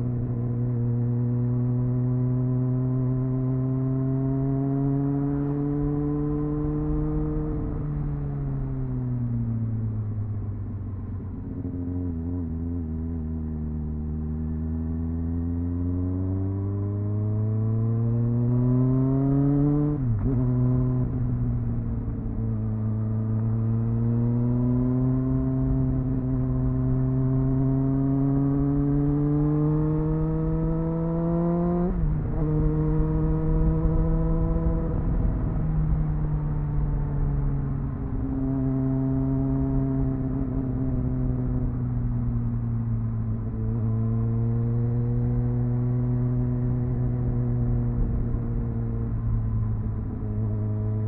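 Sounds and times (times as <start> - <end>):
motorcycle engine revving: 11.3 - 51.0.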